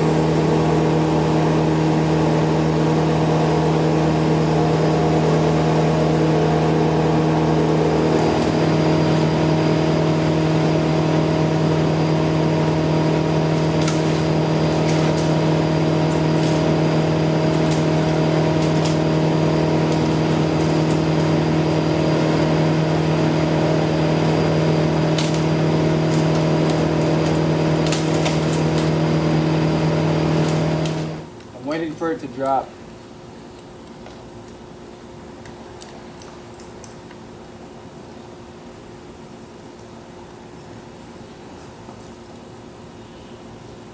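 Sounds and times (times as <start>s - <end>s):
engine running steadily: 0.0s - 32.6s.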